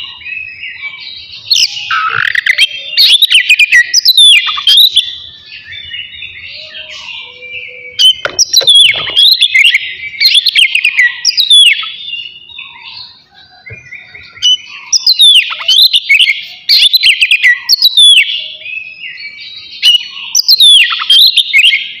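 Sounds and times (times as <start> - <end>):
songbird whistles and chirps: 0.0 - 22.0.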